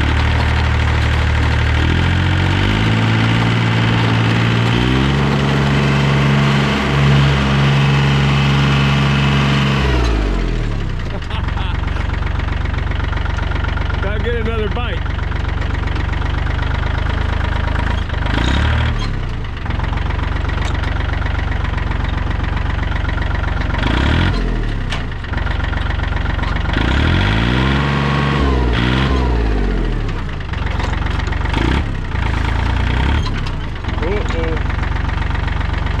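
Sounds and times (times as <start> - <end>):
tractor engine revving: 0.0 - 36.0.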